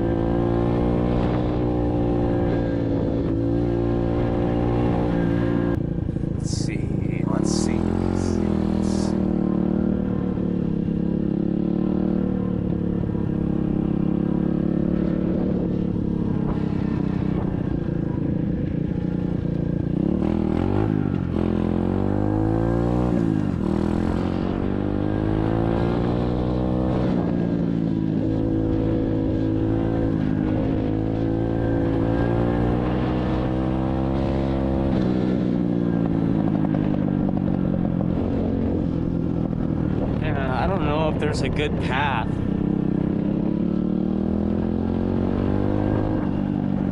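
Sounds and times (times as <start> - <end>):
dirt bike engine revving: 6.4 - 12.4.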